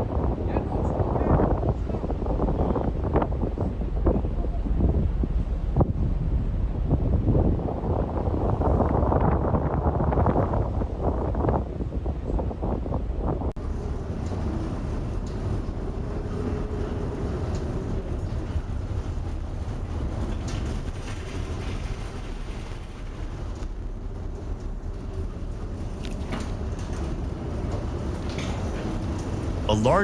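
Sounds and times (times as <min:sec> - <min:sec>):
sea: 0:00.0 - 0:30.0
ship engine rumble: 0:00.0 - 0:30.0
wind: 0:00.0 - 0:30.0.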